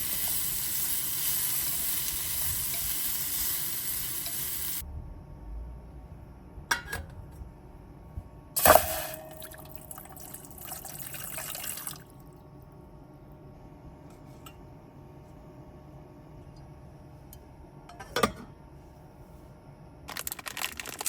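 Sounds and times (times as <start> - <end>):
liquid pouring: 8.6 - 12.1.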